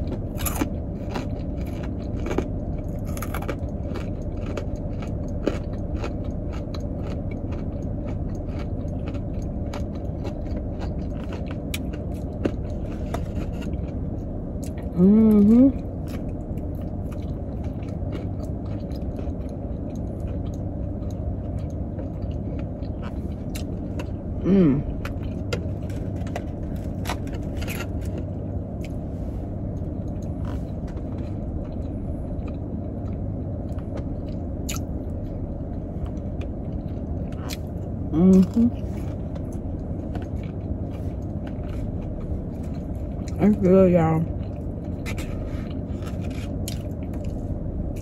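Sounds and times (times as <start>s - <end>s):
person chewing: 0.0s - 43.4s, 44.3s - 48.0s
person humming: 14.9s - 15.8s, 24.4s - 25.0s.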